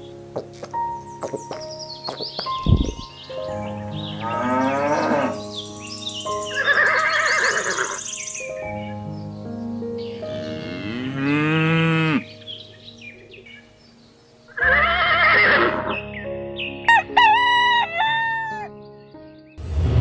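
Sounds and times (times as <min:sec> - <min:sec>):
background music: 0:00.0 - 0:20.0
rooster crowing: 0:16.9 - 0:18.7.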